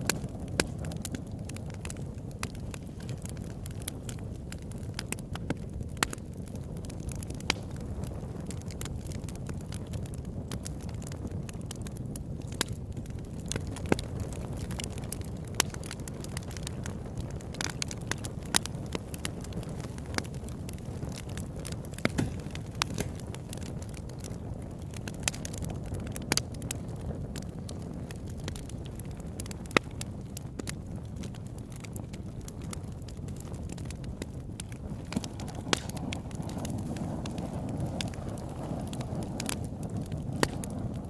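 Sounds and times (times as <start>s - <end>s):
fire low rumble: 0.0s - 41.0s
wood crackling and popping: 0.0s - 41.0s.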